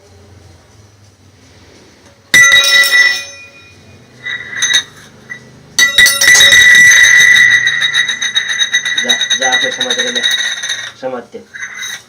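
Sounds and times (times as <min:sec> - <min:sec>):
hard object ringing when struck: 0:02.4 - 0:12.0.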